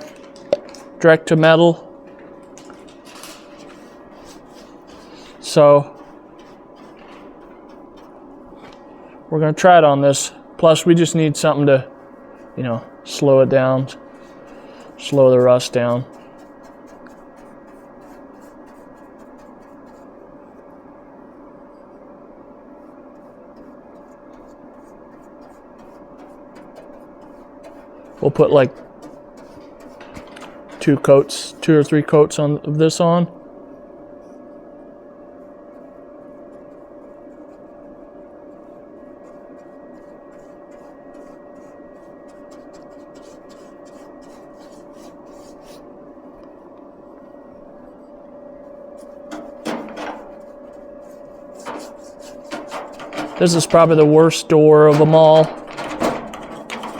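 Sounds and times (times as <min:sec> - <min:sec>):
steady hum: 0:00.0 - 0:56.9
light rapid scratching: 0:02.6 - 0:09.1, 0:10.6 - 0:20.7, 0:22.7 - 0:32.2, 0:38.4 - 0:45.9, 0:47.8 - 0:56.9
quick rubbing strokes: 0:38.6 - 0:45.9, 0:49.0 - 0:53.9.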